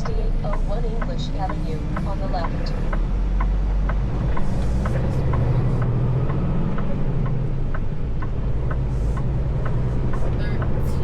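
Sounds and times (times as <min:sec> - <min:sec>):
engine and road hum: 0:00.0 - 0:11.0
regular ticking: 0:00.0 - 0:11.0.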